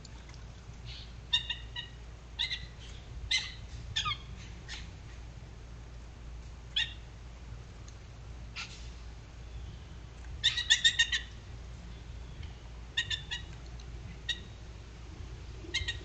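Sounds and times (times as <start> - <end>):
steady low hum: 0.0 - 16.0
birds calling sharply: 0.9 - 5.2, 8.6 - 13.5.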